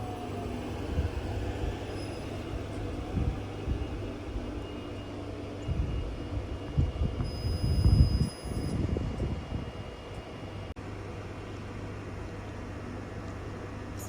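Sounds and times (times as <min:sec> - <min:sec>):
train rumbling past: 0:00.0 - 0:07.3
faint high whine: 0:00.0 - 0:10.7.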